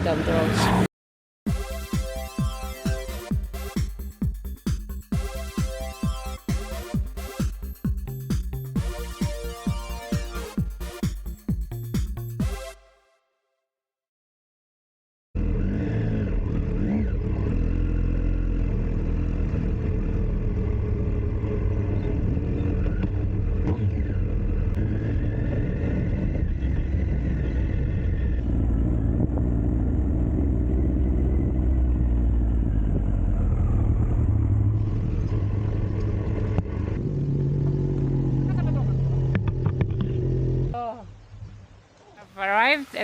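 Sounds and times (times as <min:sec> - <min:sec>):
motorcycle engine running: 0:15.4 - 0:40.8.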